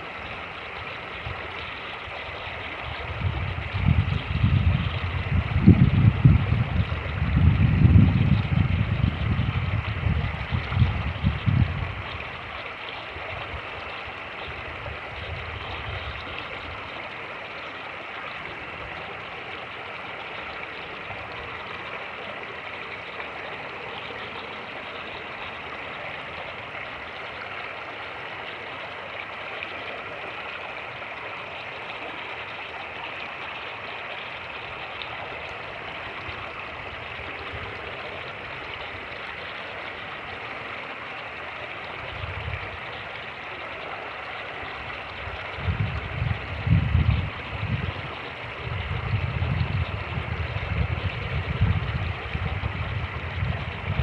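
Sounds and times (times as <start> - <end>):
creek water rushing over rapids: 0.0 - 54.0
wind buffeting microphone: 2.8 - 12.6, 14.5 - 16.9, 42.0 - 43.0, 44.8 - 54.0.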